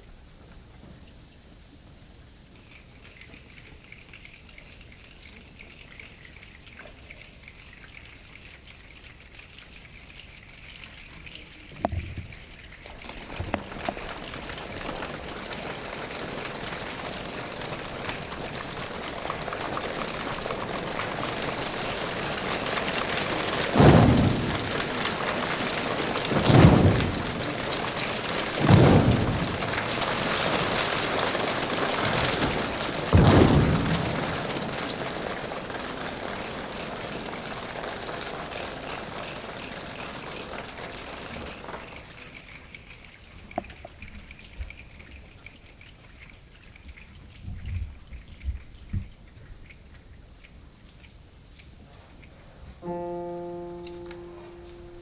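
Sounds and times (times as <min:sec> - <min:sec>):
hands and feet rain patter: 0:00.0 - 0:55.0
heavy low thumps: 0:28.6 - 0:30.3.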